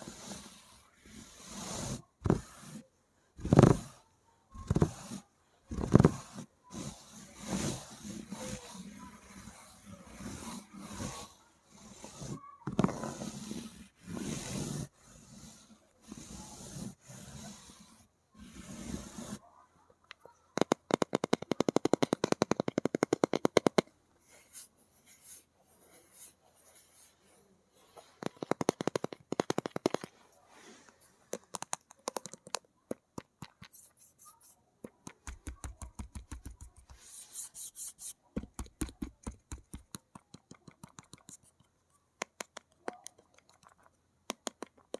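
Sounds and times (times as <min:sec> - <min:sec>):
fingernails scratching: 0:03.4 - 0:04.0, 0:04.6 - 0:19.4, 0:20.5 - 0:23.8, 0:27.9 - 0:44.9
fast fingernail tapping: 0:20.6 - 0:23.8, 0:28.2 - 0:30.1, 0:31.4 - 0:33.8, 0:34.9 - 0:37.0, 0:38.4 - 0:41.6, 0:42.2 - 0:44.9.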